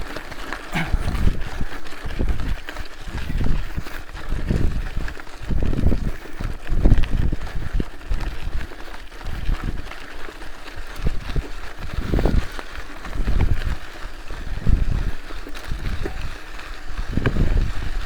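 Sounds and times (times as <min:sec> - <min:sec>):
wind buffeting microphone: 0:00.7 - 0:08.6, 0:14.4 - 0:18.0.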